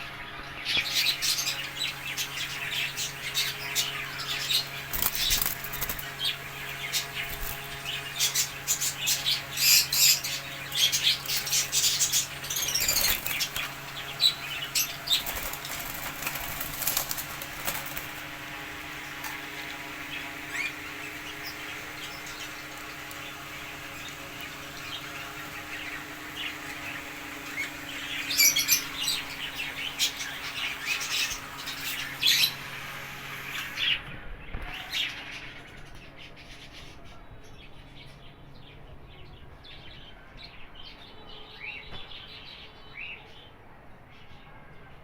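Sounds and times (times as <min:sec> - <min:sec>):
parrots chirping: 0:00.0 - 0:34.0
steady low hum: 0:00.0 - 0:45.0
wings fluttering: 0:00.7 - 0:34.9.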